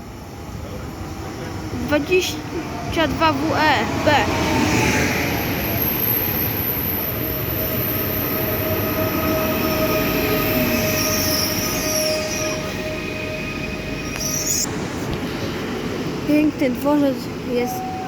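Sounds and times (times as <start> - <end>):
train wheels rumbling: 0.0 - 18.0
high-pitched wheel squeal on rail: 5.4 - 14.8.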